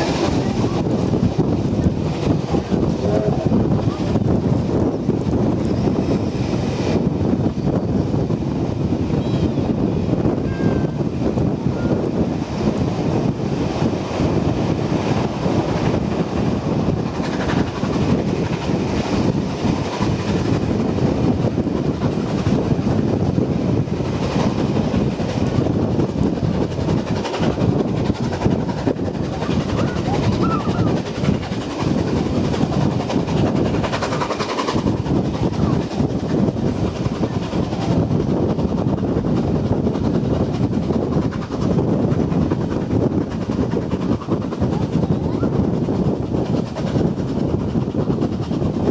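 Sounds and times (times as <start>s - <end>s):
train wheels rumbling on track: 0.0s - 48.9s.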